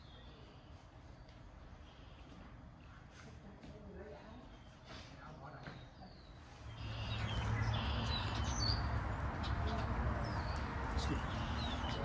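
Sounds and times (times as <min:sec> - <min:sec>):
small birds chirping: 0:04.2 - 0:12.0.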